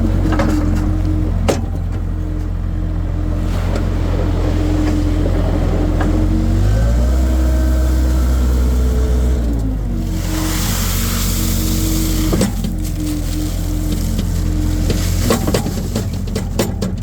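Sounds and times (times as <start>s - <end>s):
skid steer engine running: 0.0s - 17.0s
hiss: 10.0s - 16.0s.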